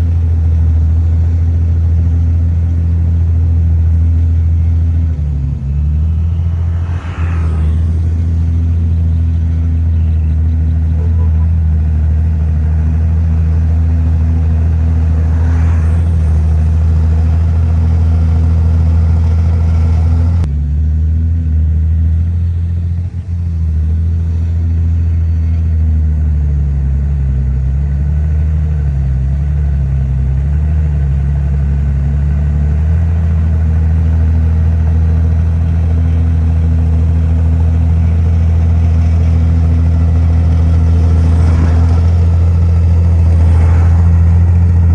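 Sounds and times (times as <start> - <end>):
heavy diesel engine running: 0.0 - 44.9.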